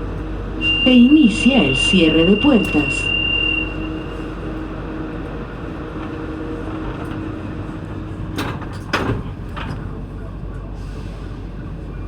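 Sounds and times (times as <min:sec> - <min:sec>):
train doors clunking shut: 0:00.0 - 0:12.0
train humming: 0:00.0 - 0:12.0.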